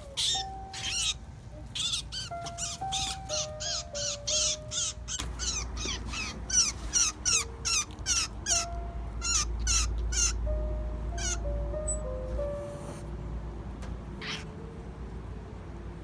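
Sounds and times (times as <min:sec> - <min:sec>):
baby bird squawking: 0:00.0 - 0:12.1, 0:14.2 - 0:14.5.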